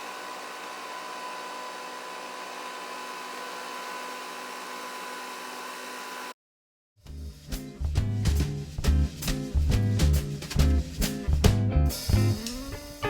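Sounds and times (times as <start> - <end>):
milk frother whirring: 0.0 - 6.4.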